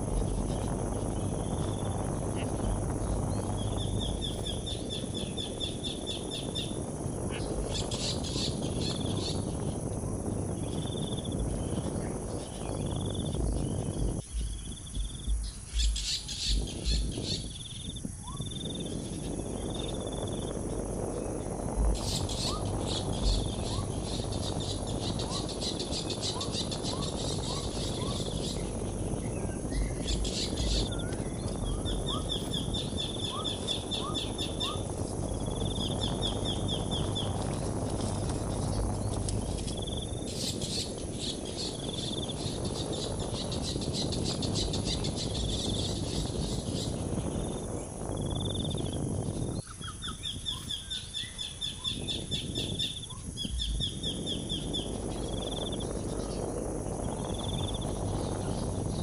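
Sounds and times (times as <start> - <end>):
small bird chirps: 0.0 - 9.8, 10.5 - 20.5, 21.2 - 47.6, 48.3 - 59.0
insects buzzing: 0.0 - 59.0
low rushing noise: 0.0 - 59.0
high trilling chirps: 21.2 - 47.6.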